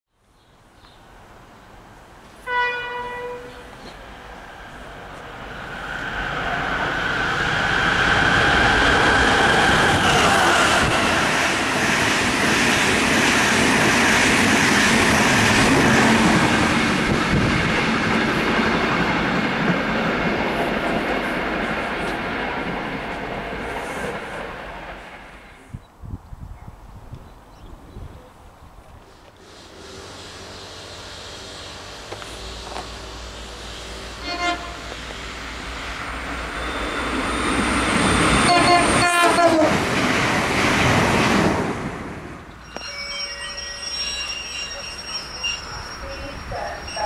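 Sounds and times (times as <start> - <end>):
diesel railcar passing at speed: 1.0 - 25.8, 29.2 - 47.0
train horn blast: 2.4 - 3.7, 29.4 - 35.2, 38.4 - 39.8.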